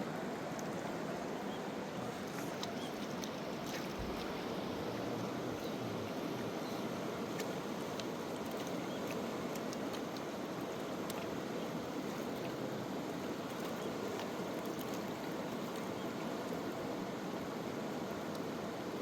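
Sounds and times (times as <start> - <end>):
river water rushing: 0.0 - 19.0
water ticking over stones: 2.3 - 4.5, 7.3 - 16.8, 18.0 - 19.0.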